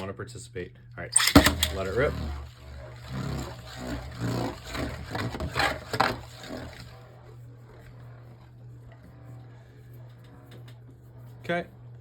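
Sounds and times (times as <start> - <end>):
spinning top clattering against walls: 1.2 - 7.0
spinning top scraping on plastic: 1.2 - 10.8.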